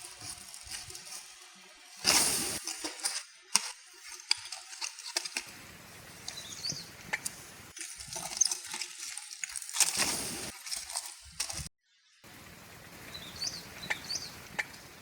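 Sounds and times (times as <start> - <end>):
faint steady hiss: 12.3 - 15.0.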